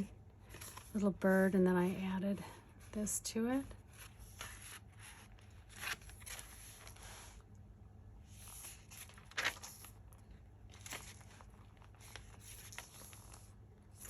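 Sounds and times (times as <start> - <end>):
paper and card rustling: 0.0 - 1.3, 2.7 - 7.4, 8.3 - 14.0
pages brushing: 3.8 - 7.5, 8.3 - 10.0, 10.7 - 14.0.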